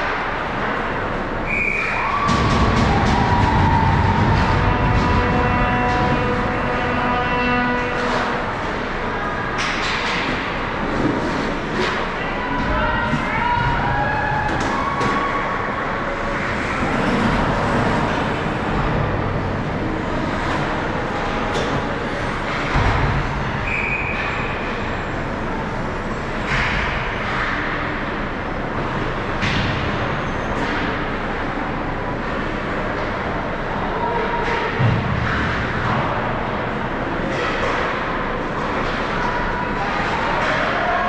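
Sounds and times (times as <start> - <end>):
hockey sticks and puck clacking: 0.0 - 25.4, 26.3 - 28.0, 29.4 - 31.2, 37.1 - 41.0
crowd noise: 0.0 - 41.0
skates on ice: 13.0 - 24.2.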